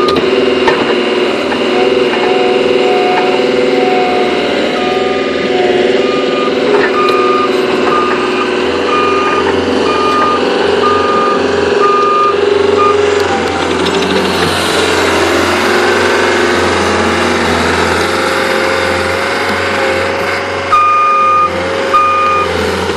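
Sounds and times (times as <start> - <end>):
diesel engine under load: 0.0 - 22.9
backup alarm beeping: 1.7 - 13.6, 20.7 - 22.5.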